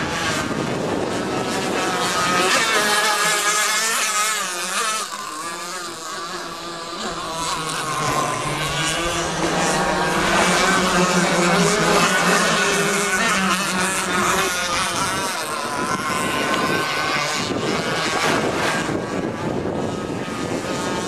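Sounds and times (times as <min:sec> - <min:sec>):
speedboat engines running: 0:00.0 - 0:21.0.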